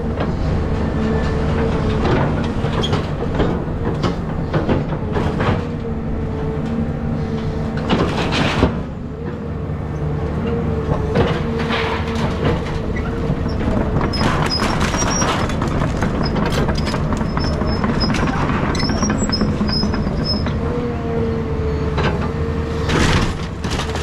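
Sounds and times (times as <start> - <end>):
excavator hydraulic whine: 0.0 - 23.2
debris cracking and crashing: 13.9 - 19.0, 22.9 - 24.0.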